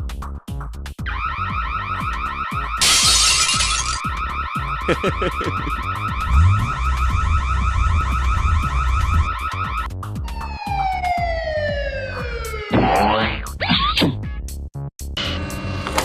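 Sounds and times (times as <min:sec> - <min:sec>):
cartoon siren warbling: 0:04.0 - 0:13.3.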